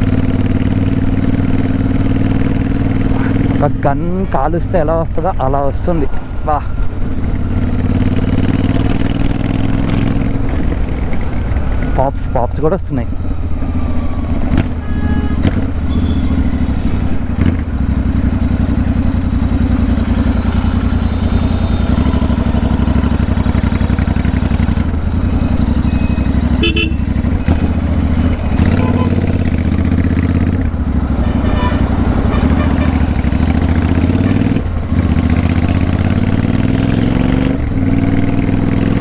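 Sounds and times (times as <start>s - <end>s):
motorcycle engine open exhaust: 13.0s - 39.0s
exhaust pops: 14.4s - 18.8s.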